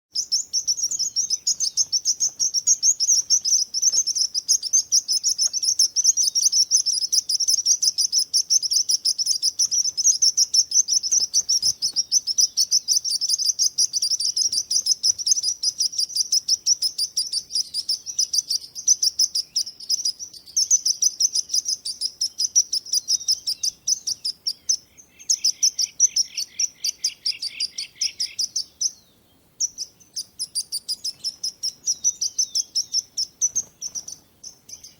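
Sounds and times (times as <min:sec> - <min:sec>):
birds chirping: 0:00.1 - 0:34.9.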